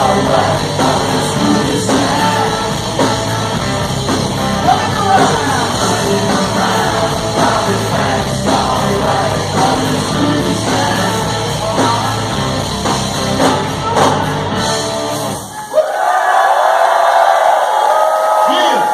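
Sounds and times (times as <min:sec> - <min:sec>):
person singing: 0:00.0 - 0:03.6, 0:04.6 - 0:12.6
live rock band playing: 0:00.0 - 0:15.6
crowd cheering and whooping: 0:15.3 - 0:18.9.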